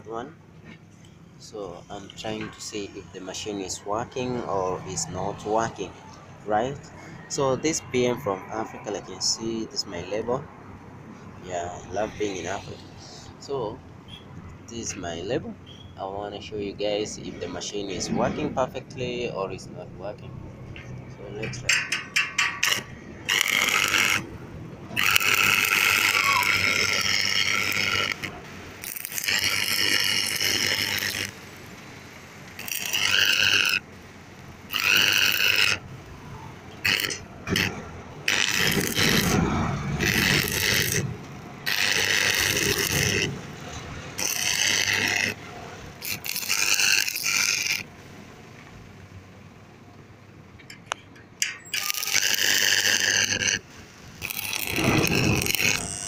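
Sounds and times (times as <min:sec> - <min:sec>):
arc welding crackling hiss: 0:22.6 - 0:24.2, 0:25.0 - 0:35.8, 0:36.8 - 0:48.1, 0:51.7 - 0:56.0.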